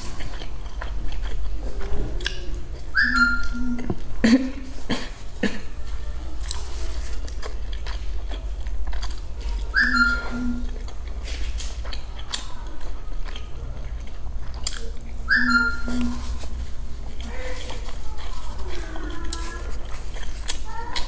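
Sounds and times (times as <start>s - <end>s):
biting and chewing crisp bread: 0.0s - 21.0s
short high chirp: 9.8s - 10.7s
wet mouth clicks: 14.5s - 16.1s.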